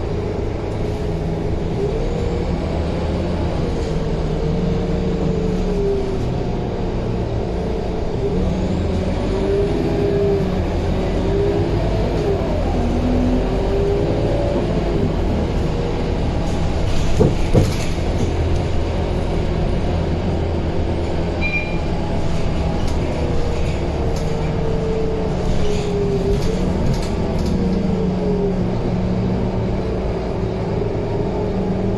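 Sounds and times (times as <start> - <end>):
bus diesel engine drone: 0.0 - 31.9
clatter of rattles: 16.5 - 18.8.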